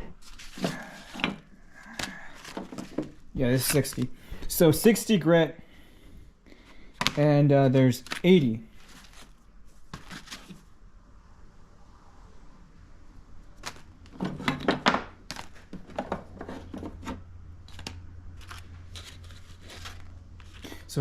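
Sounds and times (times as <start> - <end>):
soft rustles: 0.0 - 4.1, 8.0 - 10.7, 15.4 - 21.0
packaging crinkling and tearing: 17.6 - 20.9.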